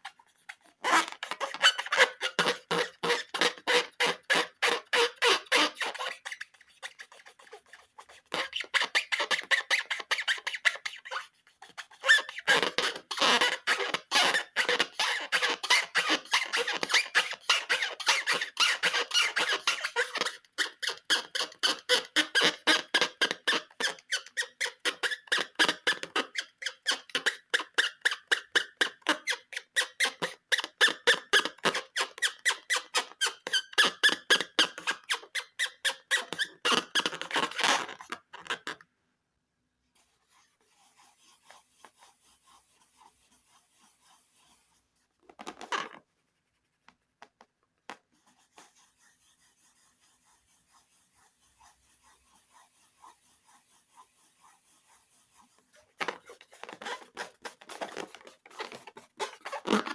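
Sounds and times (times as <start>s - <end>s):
faint rubbing: 0.0s - 20.2s, 39.8s - 47.2s, 48.0s - 59.9s
balloon squeaking under hands: 0.0s - 38.8s, 40.2s - 46.0s, 47.9s - 59.9s.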